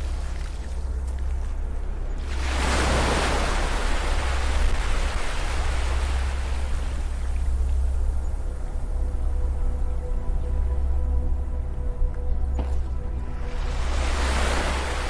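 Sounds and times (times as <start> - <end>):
low hum: 0.0 - 15.0
ocean wave breaking: 2.2 - 7.1, 13.5 - 15.0.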